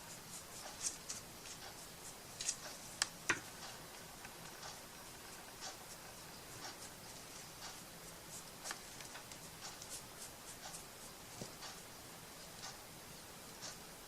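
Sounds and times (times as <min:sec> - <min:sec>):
hands scratching craft materials: 0:00.0 - 0:03.1, 0:05.5 - 0:11.8.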